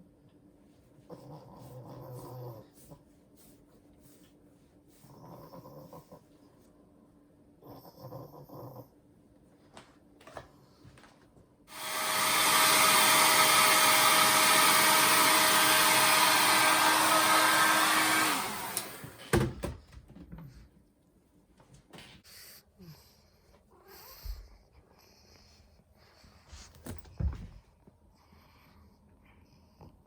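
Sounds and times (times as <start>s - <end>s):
hair dryer motor whine: 11.7s - 19.5s.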